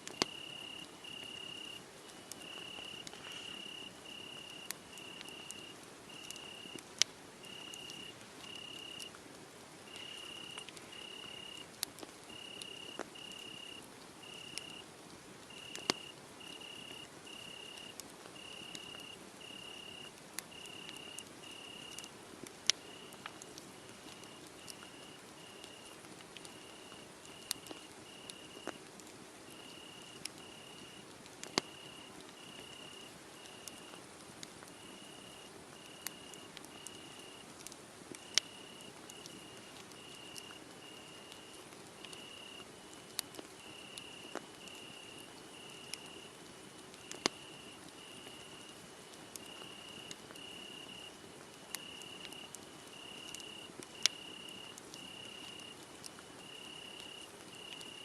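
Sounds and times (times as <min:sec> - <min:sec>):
wood fire crackling: 0:00.0 - 0:58.0
crickets chirping: 0:00.1 - 0:06.8, 0:07.4 - 0:09.1, 0:09.9 - 0:11.7, 0:12.3 - 0:14.8, 0:15.5 - 0:22.0, 0:22.8 - 0:23.2, 0:24.2 - 0:25.9, 0:26.5 - 0:27.5, 0:29.5 - 0:31.0, 0:31.6 - 0:34.0, 0:34.8 - 0:37.4, 0:38.2 - 0:43.0, 0:43.6 - 0:46.2, 0:47.1 - 0:48.8, 0:49.4 - 0:55.8, 0:56.4 - 0:58.0.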